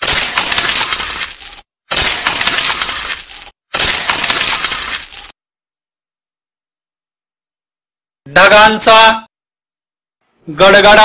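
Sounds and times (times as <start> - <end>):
coins jingling and clinking: 0.0 - 5.3.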